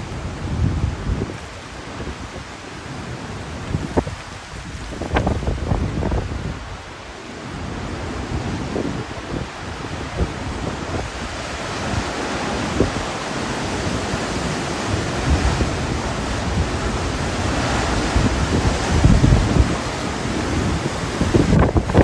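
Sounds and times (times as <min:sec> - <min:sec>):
wind buffeting microphone: 0:00.0 - 0:02.6, 0:03.4 - 0:07.0, 0:07.6 - 0:22.0
hurricane wind gusts: 0:00.0 - 0:22.0.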